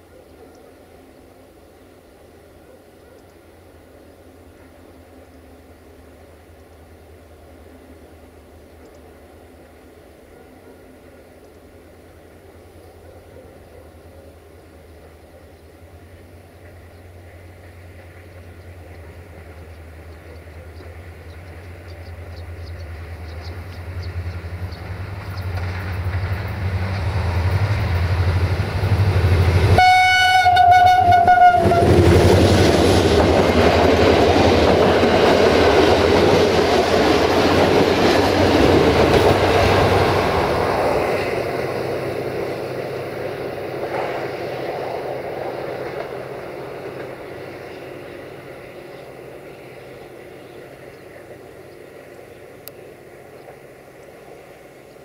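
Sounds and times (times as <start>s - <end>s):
diesel locomotive engine droning: 0.0s - 55.0s
wheels clattering over rail joints: 24.2s - 29.5s
train horn blast: 29.6s - 32.4s.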